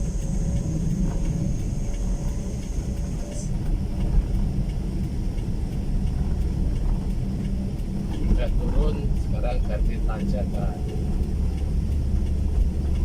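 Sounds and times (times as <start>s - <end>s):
faint high whine: 0.0s - 3.7s
motorcycle engine rumble: 0.0s - 13.0s.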